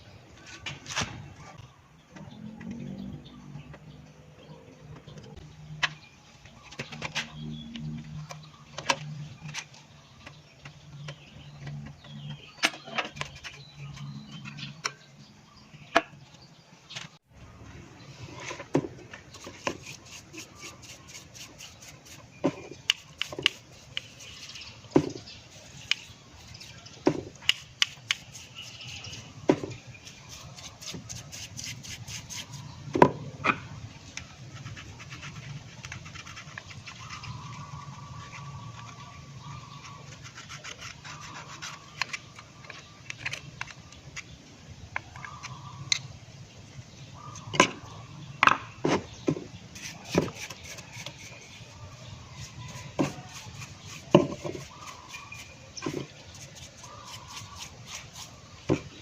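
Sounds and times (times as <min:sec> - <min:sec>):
rubbing and scrubbing: 0:19.2 - 0:32.9, 0:34.4 - 0:43.4, 0:49.7 - 0:59.0.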